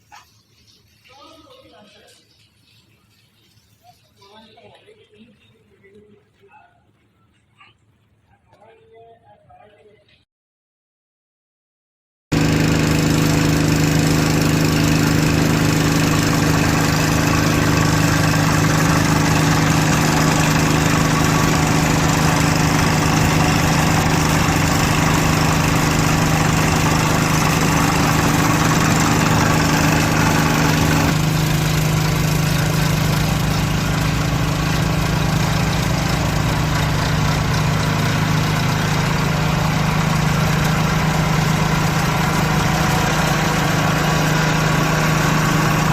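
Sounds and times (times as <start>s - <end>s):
tractor diesel engine running: 12.3s - 45.9s.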